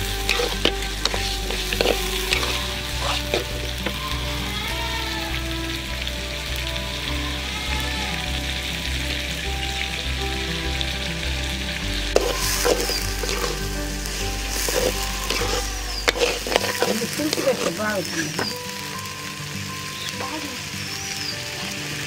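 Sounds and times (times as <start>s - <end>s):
meat sizzling in a pan: 0.0s - 22.0s
metal spatula scraping pan: 0.2s - 4.0s, 12.2s - 18.5s.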